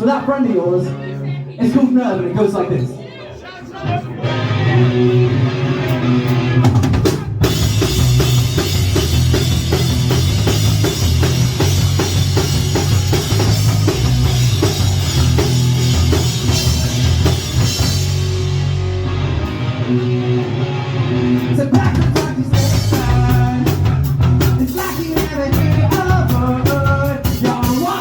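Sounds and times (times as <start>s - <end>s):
rock band playing: 3.8s - 28.0s
drum kit hits: 6.6s - 19.7s.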